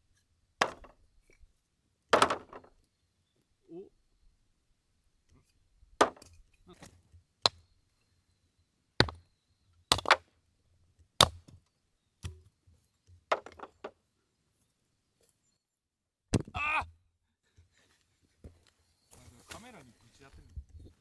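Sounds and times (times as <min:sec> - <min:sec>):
axe chopping firewood: 0:00.6 - 0:01.0, 0:02.2 - 0:02.7, 0:06.0 - 0:07.6, 0:09.0 - 0:09.2, 0:09.9 - 0:10.3, 0:11.2 - 0:11.6, 0:13.3 - 0:13.9, 0:16.3 - 0:16.8
split wood pieces falling: 0:00.6 - 0:01.0, 0:02.2 - 0:02.7, 0:09.9 - 0:10.2, 0:13.3 - 0:13.9.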